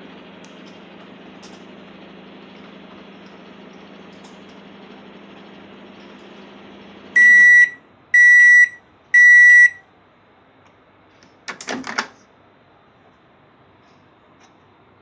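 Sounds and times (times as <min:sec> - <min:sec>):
microwave oven humming: 0:00.0 - 0:14.3
high microwave beeps: 0:07.2 - 0:09.8.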